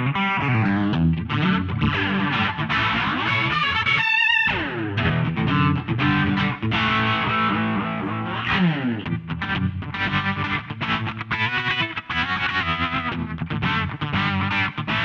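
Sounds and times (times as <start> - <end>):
electric guitar with modulation effects: 0.0 - 15.0.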